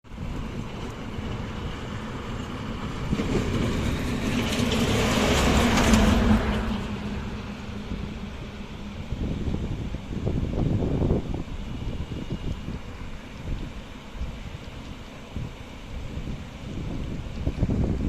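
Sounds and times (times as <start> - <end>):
vehicle passing by: 0.5 - 9.5.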